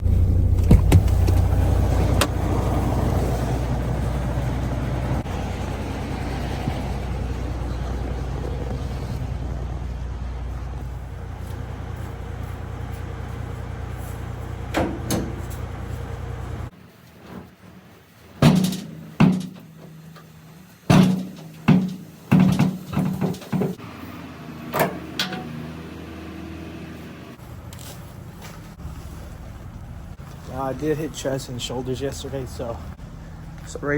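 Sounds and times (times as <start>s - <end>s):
diesel truck engine running: 0.0s - 16.9s, 17.5s - 33.9s
sharp knocks and bangs: 14.7s - 15.6s, 18.4s - 20.3s, 20.9s - 23.8s.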